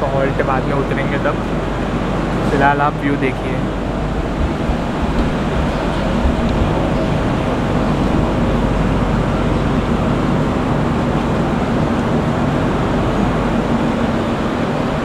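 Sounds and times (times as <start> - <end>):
passenger train rumble: 0.0 - 15.0.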